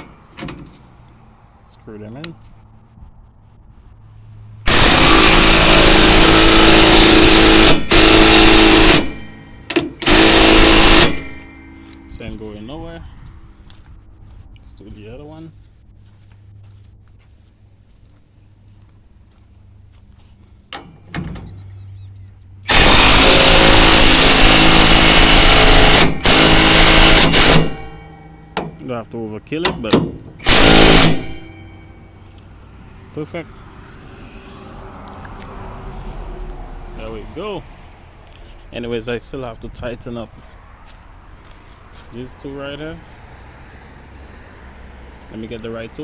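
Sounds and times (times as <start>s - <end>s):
power drill motor whine: 4.7s - 12.1s, 22.7s - 28.5s, 30.4s - 32.4s.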